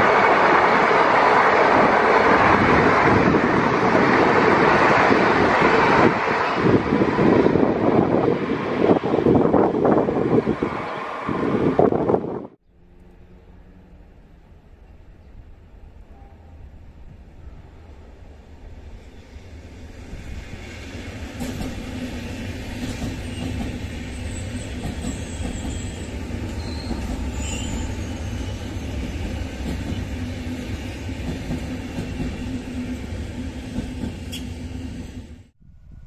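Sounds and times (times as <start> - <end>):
train wheels rumbling on track: 0.0 - 35.5
train hum: 0.0 - 36.0
high squeals: 23.2 - 29.1.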